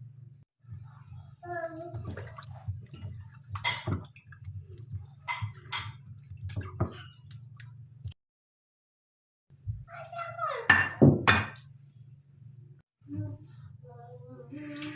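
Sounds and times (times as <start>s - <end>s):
water splashing and dripping: 1.4s - 8.2s.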